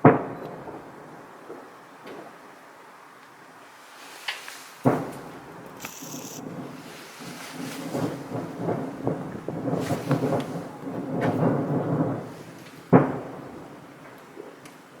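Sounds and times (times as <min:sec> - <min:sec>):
distant fireworks crackling: 0:00.0 - 0:02.6, 0:03.2 - 0:15.0
loud firework bang: 0:12.9 - 0:13.5.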